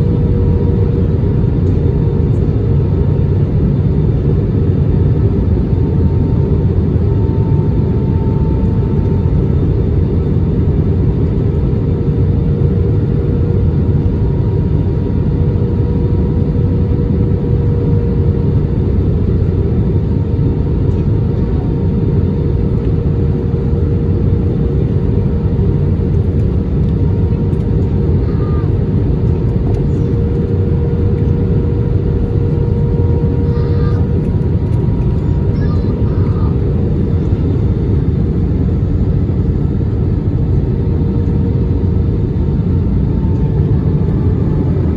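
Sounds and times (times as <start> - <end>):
airplane cabin engine rumble: 0.0 - 44.9
constant hum: 0.0 - 44.9.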